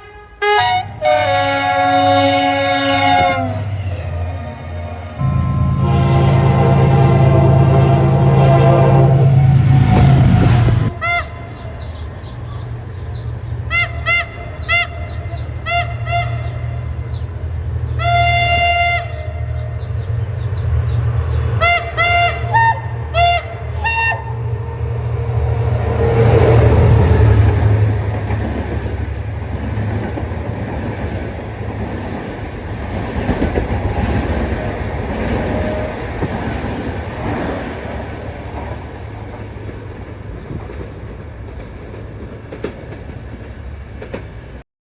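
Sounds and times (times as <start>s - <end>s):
locomotive horn blasts: 0.0s - 11.5s, 13.7s - 16.8s, 18.0s - 19.7s, 21.6s - 24.8s
train wheels clicking on rail joints: 25.5s - 44.6s.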